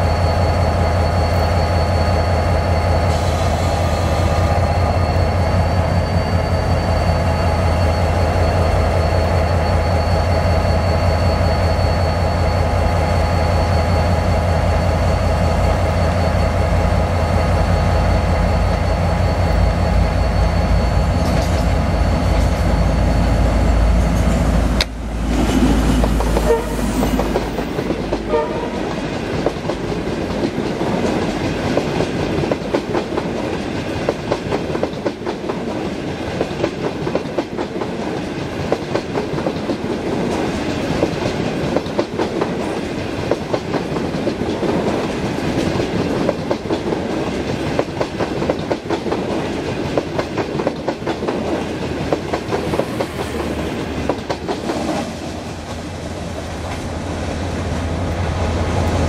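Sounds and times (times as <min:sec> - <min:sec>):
diesel train engine running: 0:00.0 - 0:59.0
wheels clacking over rail joints: 0:24.0 - 0:56.9.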